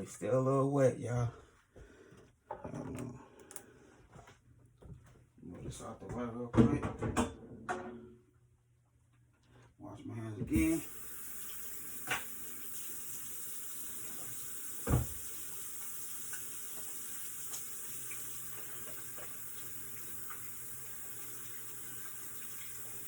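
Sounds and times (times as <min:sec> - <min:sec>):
kitchen tap running: 0:10.5 - 0:23.0
meat sizzling in oil: 0:10.8 - 0:23.0.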